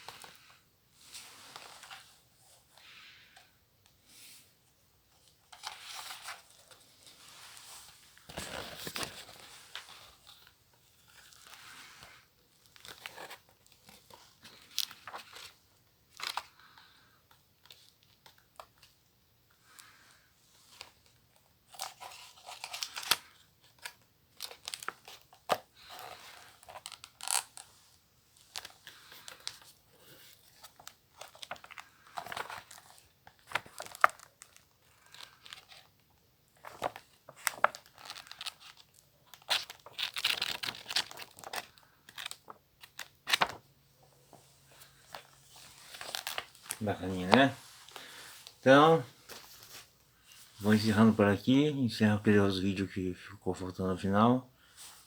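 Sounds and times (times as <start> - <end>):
packaging ripping and crinkling: 36.8 - 43.6, 45.8 - 47.5.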